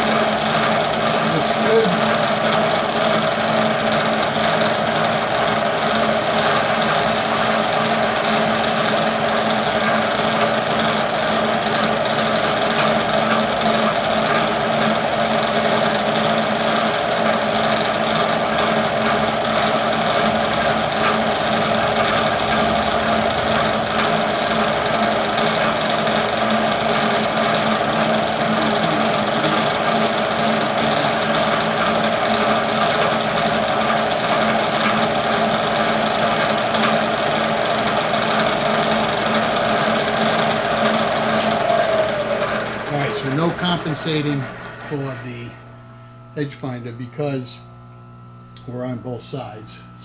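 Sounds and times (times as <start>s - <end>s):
milling machine humming: 0.0s - 50.0s.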